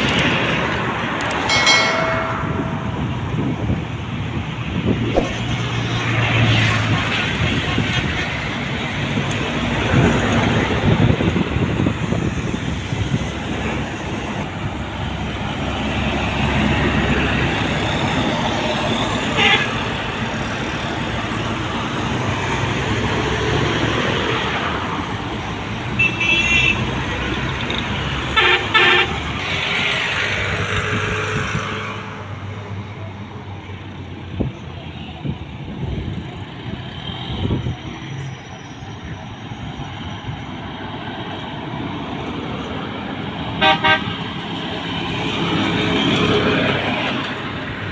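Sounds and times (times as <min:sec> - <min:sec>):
traffic passing on highway: 0:00.0 - 0:47.9
horn blasts: 0:43.6 - 0:44.2.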